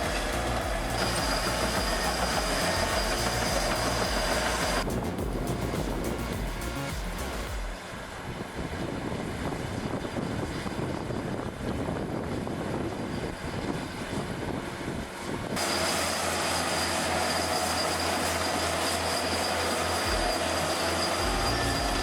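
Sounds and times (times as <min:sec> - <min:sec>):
bulldozer engine running: 0:00.0 - 0:08.3, 0:15.6 - 0:22.0
tracks rumbling: 0:00.0 - 0:08.4
machine noise with high whine: 0:00.0 - 0:22.0.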